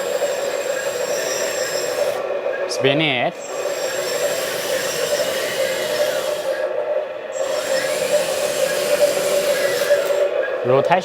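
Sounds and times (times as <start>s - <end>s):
simulated crawler track clatter: 0.0s - 11.0s.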